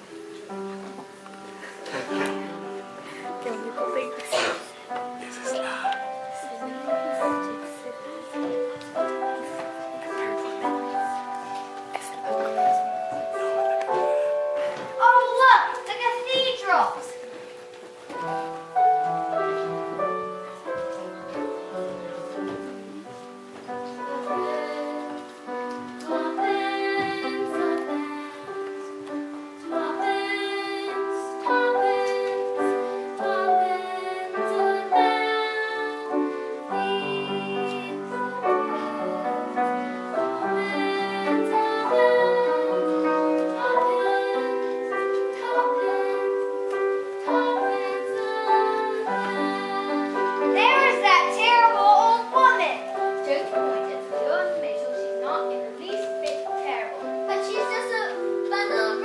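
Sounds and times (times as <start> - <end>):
piano accompaniment: 0.0 - 59.0
person singing slow song: 29.6 - 46.6.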